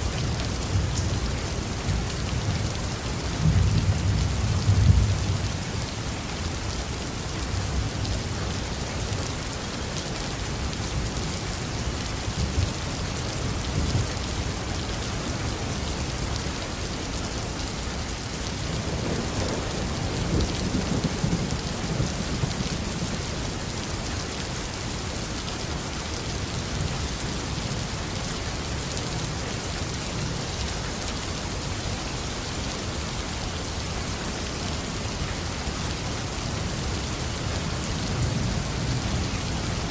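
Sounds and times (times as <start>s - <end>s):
heavy rain on a roof: 0.0s - 39.9s
low rumble of thunder: 3.3s - 5.8s, 18.6s - 23.4s.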